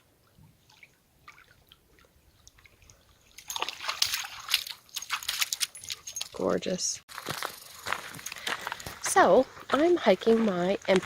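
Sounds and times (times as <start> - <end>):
water lapping at shore: 0.0 - 6.4.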